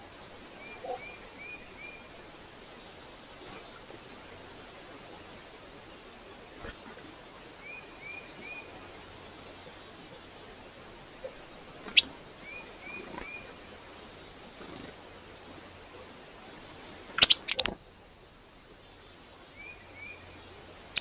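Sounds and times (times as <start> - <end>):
background hiss: 0.0 - 21.0
small bird chirping: 7.6 - 13.5, 17.2 - 21.0.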